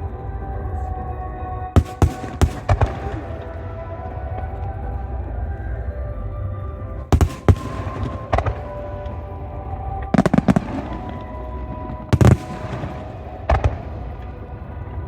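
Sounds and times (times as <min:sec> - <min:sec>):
music: 0:00.0 - 0:15.0
fireworks bursting in sharp bangs: 0:01.8 - 0:03.3, 0:07.1 - 0:08.7, 0:12.1 - 0:13.8.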